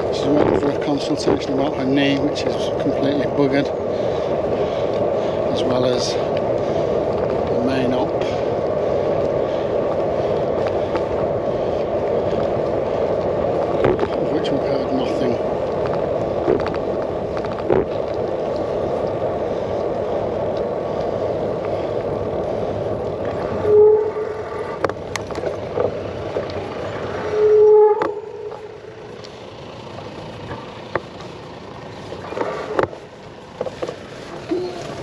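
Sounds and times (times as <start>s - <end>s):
bicycle tyre rumble: 0.0s - 35.0s
short squeals: 23.5s - 24.8s.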